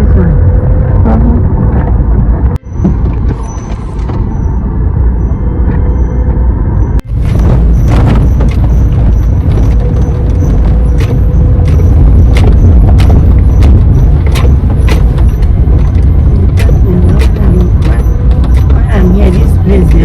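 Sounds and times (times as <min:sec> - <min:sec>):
vehicle rumbling: 0:00.0 - 0:20.0
sharp clicks and rattles: 0:07.0 - 0:20.0.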